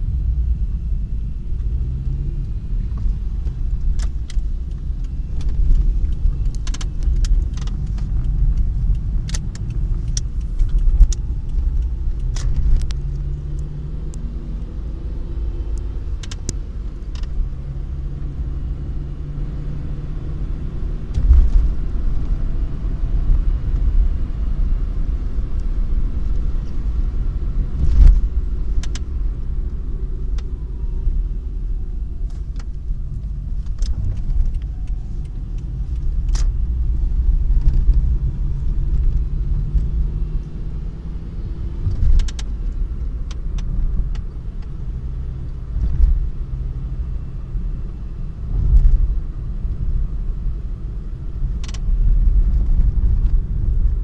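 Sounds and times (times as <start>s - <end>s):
car engine rumbling: 0.0s - 54.0s
engine knocks and clicks: 2.4s - 14.3s, 15.7s - 17.5s, 21.1s - 22.4s, 25.6s - 30.7s, 32.1s - 40.6s, 41.5s - 46.8s, 51.2s - 54.0s.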